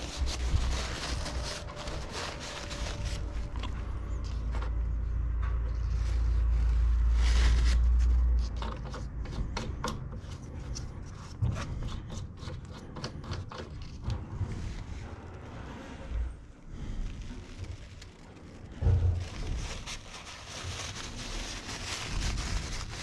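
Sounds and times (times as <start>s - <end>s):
low rumble: 0.0s - 8.6s, 14.0s - 23.0s
clicks knocks and scrapes: 7.9s - 16.3s.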